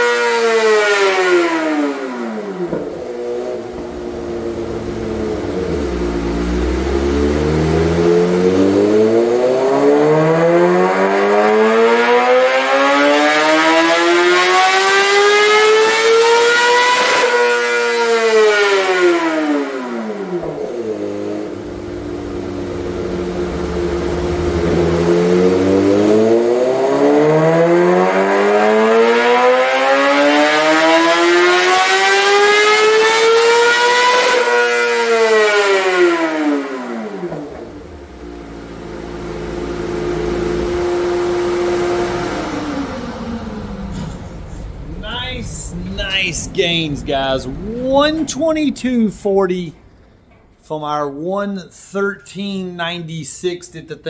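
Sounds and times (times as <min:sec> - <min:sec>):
motorcycle engine revving on dyno: 0:00.0 - 0:45.0.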